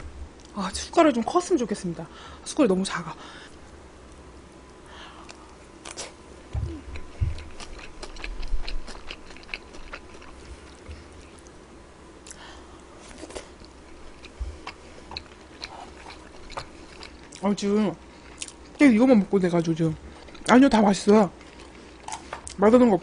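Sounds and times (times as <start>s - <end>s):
person chewing food: 4.1s - 11.6s, 12.2s - 18.8s, 19.5s - 22.6s
low thumps: 6.5s - 7.6s.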